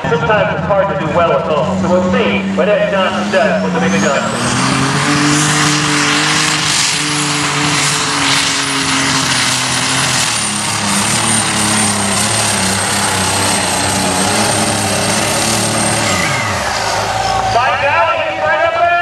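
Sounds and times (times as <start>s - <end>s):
diesel engine running hard: 0.0s - 19.0s.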